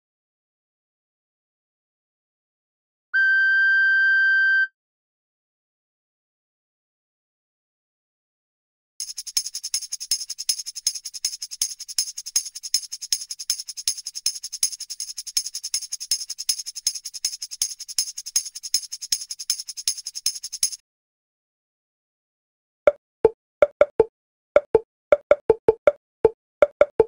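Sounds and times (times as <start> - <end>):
tambourine shaken rhythmically: 9.0 - 20.8.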